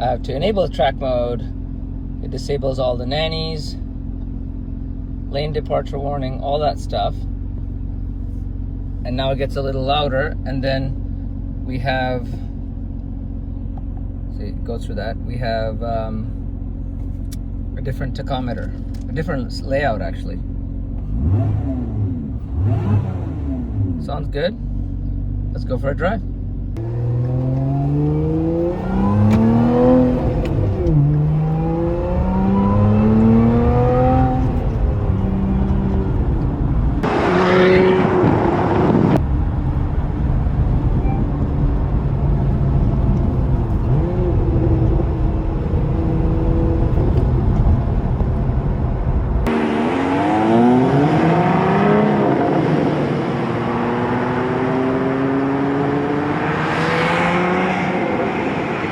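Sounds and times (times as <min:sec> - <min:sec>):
car engine accelerating through gears: 0:20.9 - 0:24.1, 0:26.7 - 0:58.9.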